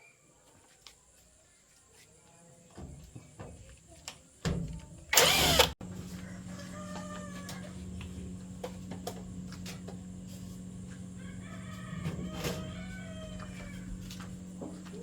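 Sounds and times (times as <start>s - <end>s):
steady low hum: 4.7s - 15.0s
loud burst of noise: 5.2s - 5.8s.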